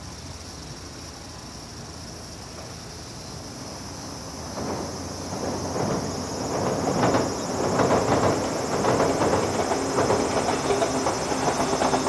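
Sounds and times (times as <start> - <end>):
insects chirping: 0.0 - 12.0
train rumbling over a steel bridge: 0.0 - 12.0
train wheels clacking: 4.5 - 12.0.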